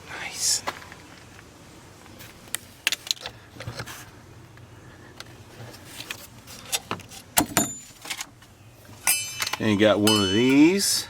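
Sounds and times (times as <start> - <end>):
metal parts clinking: 9.0 - 10.9.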